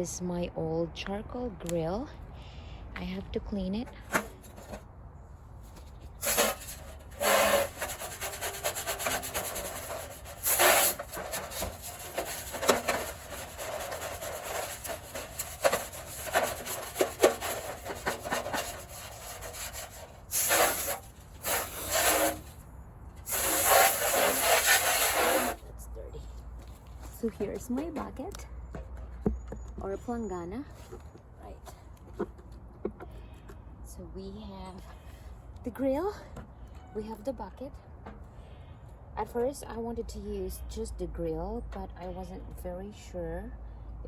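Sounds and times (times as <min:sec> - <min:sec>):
scrubbing and scraping a grill: 0:04.0 - 0:04.9, 0:05.6 - 0:25.8.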